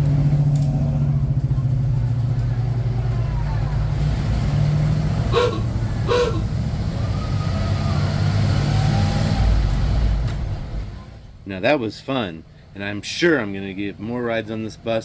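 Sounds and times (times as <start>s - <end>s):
bus engine humming: 0.0s - 15.0s
short high-pitched sounds: 5.4s - 6.4s.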